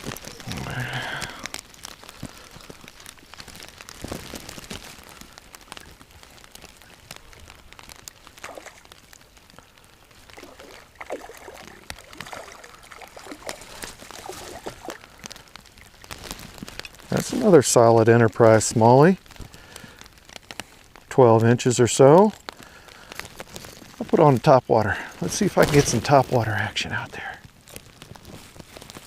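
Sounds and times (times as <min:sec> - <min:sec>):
rain drops ticking: 0:00.0 - 0:29.0
brief louder splashes: 0:10.3 - 0:15.0.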